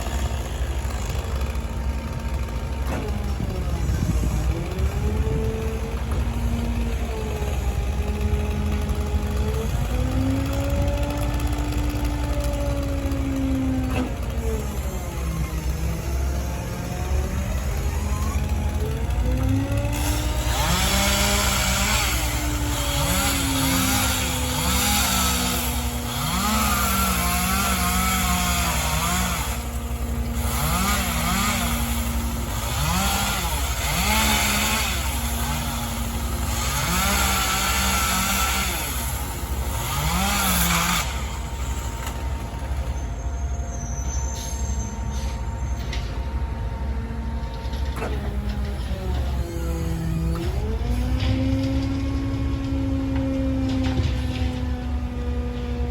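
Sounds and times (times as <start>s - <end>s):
diesel engine idling: 0.0s - 20.9s
chainsaw revving: 0.0s - 42.4s.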